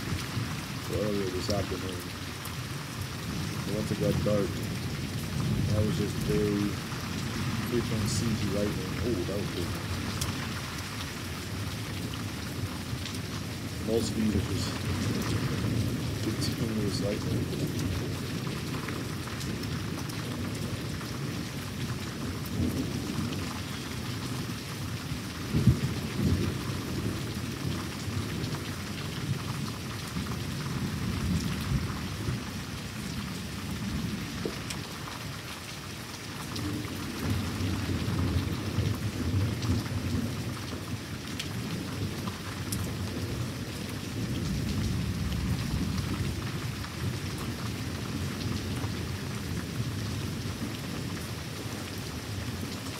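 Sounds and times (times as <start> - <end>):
steady rain falling: 0.0 - 52.9
thunder rumbling: 3.0 - 10.7, 11.5 - 24.5, 25.2 - 29.4, 36.6 - 40.9.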